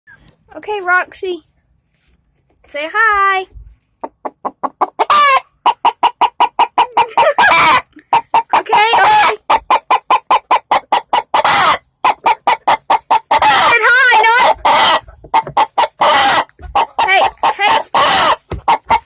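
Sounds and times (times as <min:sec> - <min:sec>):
chicken clucking rapidly: 0:04.0 - 0:19.0
chicken squawking: 0:04.4 - 0:19.0.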